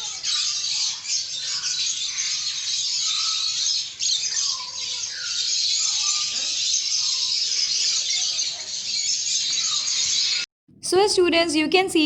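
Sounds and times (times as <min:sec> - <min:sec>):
small birds chattering and chirping: 0:00.0 - 0:10.4.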